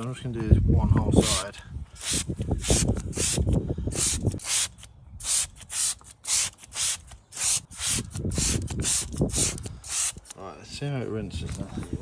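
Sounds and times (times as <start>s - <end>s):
spray bottle squirts: 2.0s - 10.4s.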